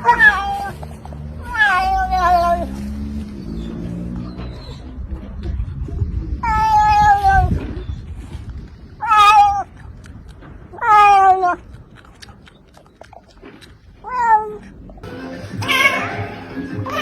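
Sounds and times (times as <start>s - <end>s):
cat meowing: 0.0s - 0.8s, 1.4s - 2.7s, 10.8s - 11.6s, 15.6s - 17.0s.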